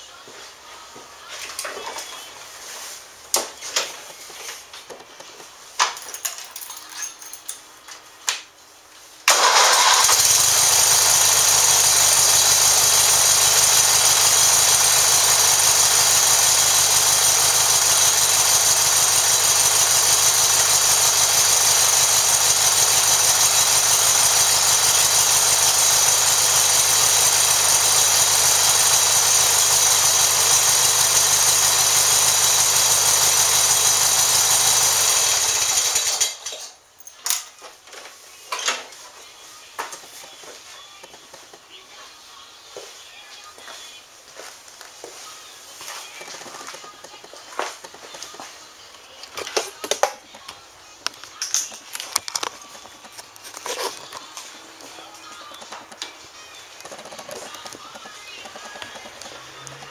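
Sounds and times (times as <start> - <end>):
lawn tractor engine starting and running: 9.3 - 36.6, 51.4 - 54.2, 54.8 - 59.9.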